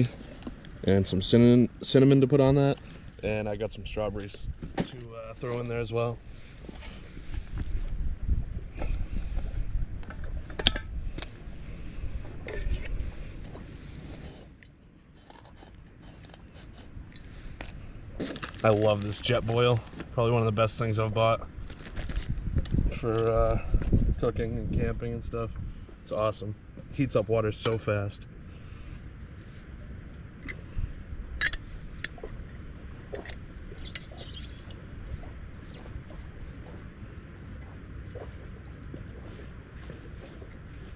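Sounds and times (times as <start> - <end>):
wind rumbling on microphone: 0.0 - 14.4, 16.7 - 40.9
cooking gear and packets rustling: 17.6 - 20.2.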